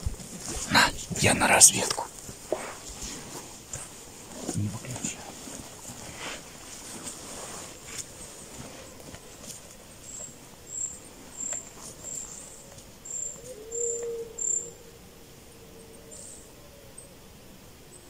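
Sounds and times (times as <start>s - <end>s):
faint low drawn-out bird call: 10.0s - 18.0s.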